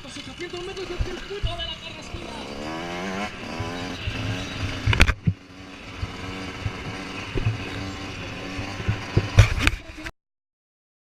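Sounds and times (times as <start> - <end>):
motocross engines running: 0.0 - 10.1
sharp loud thumps: 8.6 - 9.8.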